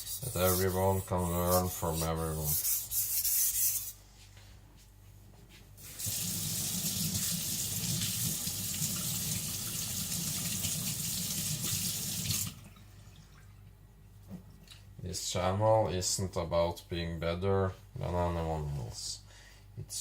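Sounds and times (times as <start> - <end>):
water tap running: 5.8 - 12.7.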